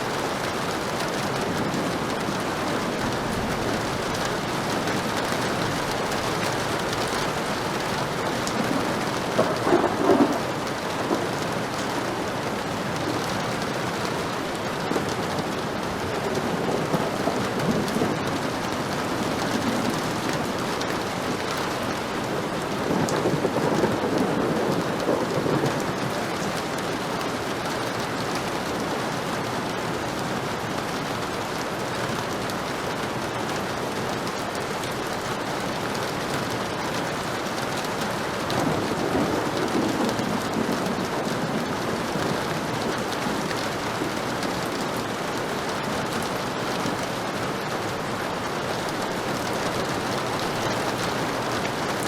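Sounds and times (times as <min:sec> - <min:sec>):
thunder rumbling: 0:00.0 - 0:27.0, 0:37.9 - 0:46.8
heavy rain: 0:00.0 - 0:52.0.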